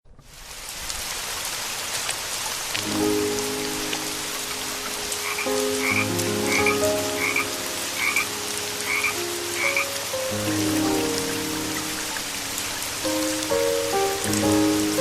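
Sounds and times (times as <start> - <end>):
steady rain: 0.1 - 15.0
frog croaking: 5.2 - 8.3, 8.9 - 9.9.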